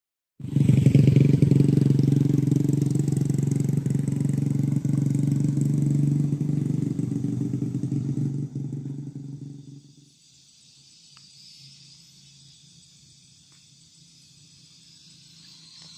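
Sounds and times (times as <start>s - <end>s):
truck engine running: 0.6s - 9.8s.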